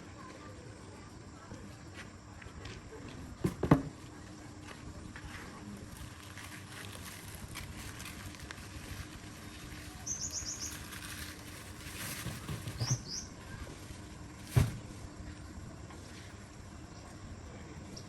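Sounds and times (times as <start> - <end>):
low steady hum: 0.0 - 18.0
small bird chirping: 9.5 - 11.4, 12.6 - 13.4.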